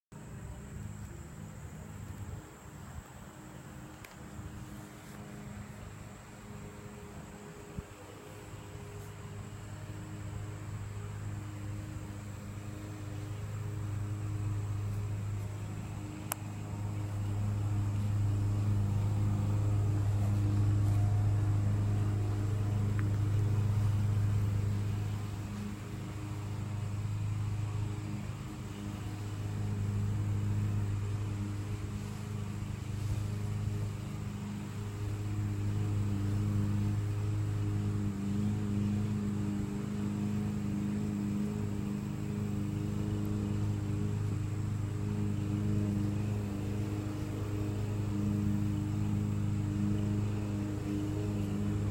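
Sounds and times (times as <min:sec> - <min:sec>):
low mechanical hum: 0:00.0 - 0:51.9.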